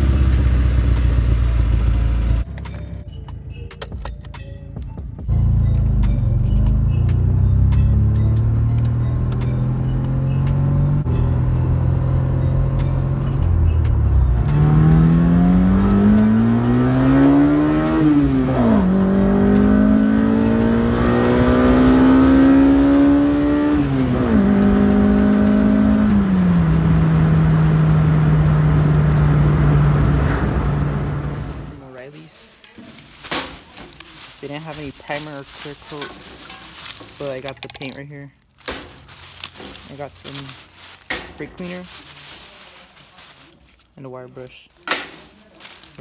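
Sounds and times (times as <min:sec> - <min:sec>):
car engine accelerating: 0:00.0 - 0:03.0, 0:05.3 - 0:31.8.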